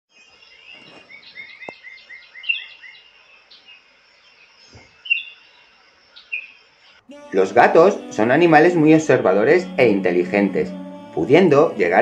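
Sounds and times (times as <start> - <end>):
small birds chirping: 0.1 - 7.2.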